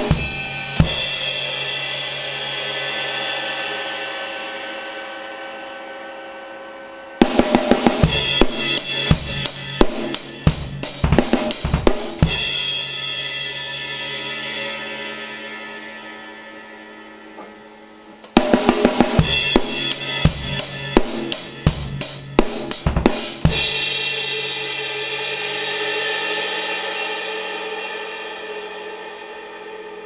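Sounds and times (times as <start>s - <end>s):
cymbal wash ringing: 0.0s - 7.2s, 12.3s - 18.2s, 23.5s - 30.0s
drum and cymbal hits: 0.0s - 30.0s.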